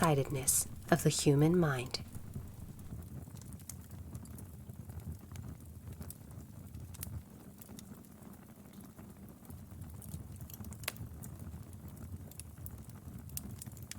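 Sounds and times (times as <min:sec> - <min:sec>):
wood fire crackling: 0:00.0 - 0:03.0.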